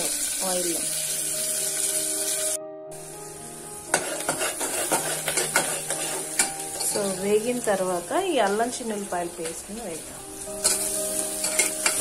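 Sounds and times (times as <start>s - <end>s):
onions sizzling in hot oil: 0.0s - 12.0s
ladle scraping pot: 3.9s - 7.0s, 10.6s - 12.0s.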